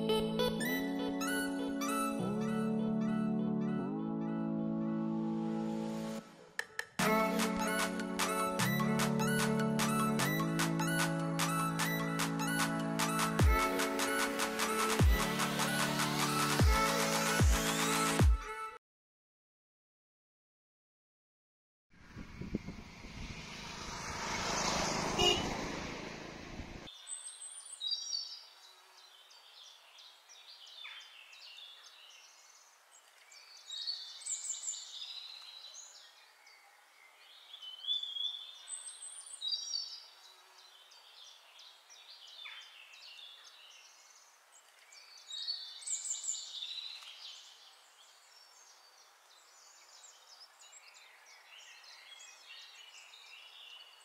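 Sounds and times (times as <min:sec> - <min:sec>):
rushing noise: 0:22.0 - 0:26.9
songbird singing: 0:26.8 - 0:54.0.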